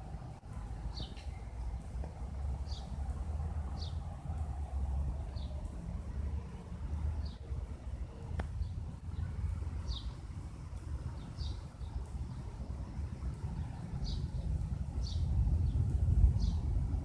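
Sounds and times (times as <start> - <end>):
wind rumble on microphone: 0.0 - 17.0
bird chirping: 0.9 - 4.2, 7.2 - 10.3, 11.0 - 16.7.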